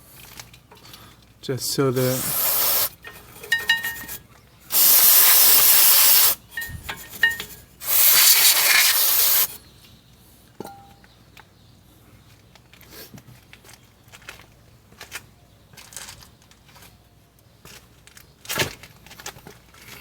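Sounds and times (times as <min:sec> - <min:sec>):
aerosol spray bursts: 0:02.0 - 0:03.0, 0:04.7 - 0:06.4, 0:07.8 - 0:09.6
light metal clinks: 0:02.1 - 0:04.2, 0:06.4 - 0:07.6, 0:10.6 - 0:11.0.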